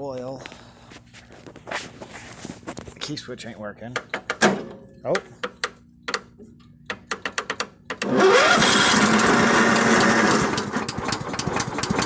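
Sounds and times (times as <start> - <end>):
sawmill engine starting and running: 7.9 - 12.0.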